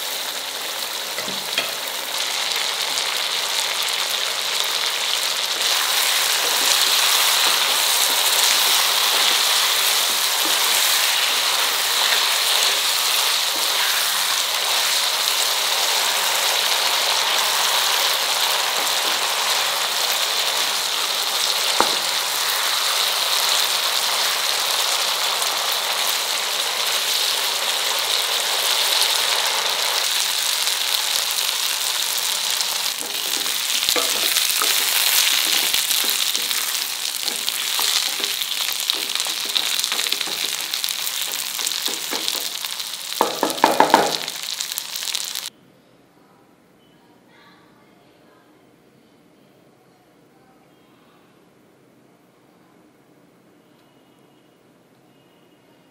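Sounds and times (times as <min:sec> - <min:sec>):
chicken sizzling in oil: 0:00.0 - 0:45.5
spatula scraping a pan: 0:33.0 - 0:42.8.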